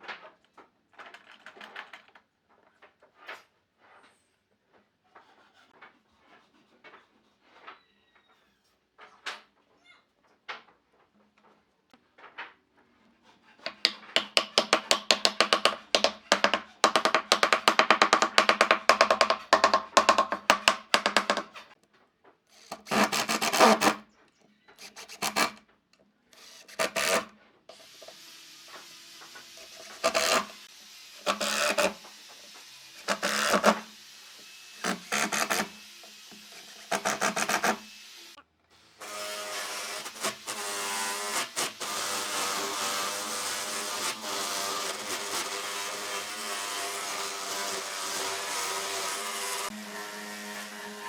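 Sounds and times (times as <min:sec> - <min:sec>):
hand tool scraping on wood: 0:12.9 - 0:21.8, 0:22.5 - 0:24.0, 0:24.8 - 0:25.6, 0:26.4 - 0:38.0, 0:39.0 - 0:51.0.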